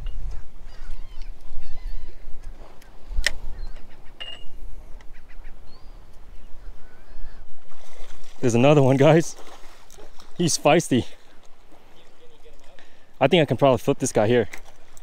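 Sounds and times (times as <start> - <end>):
faint bird calls: 0.0 - 7.6.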